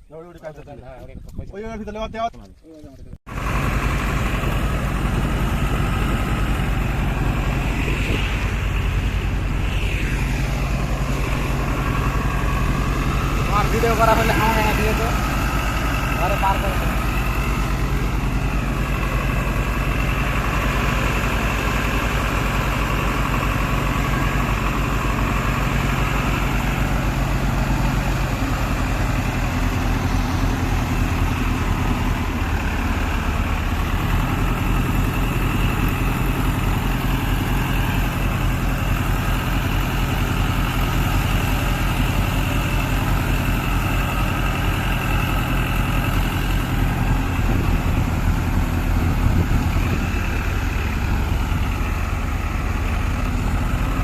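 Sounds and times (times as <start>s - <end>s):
tractor engine idling: 3.3s - 54.0s.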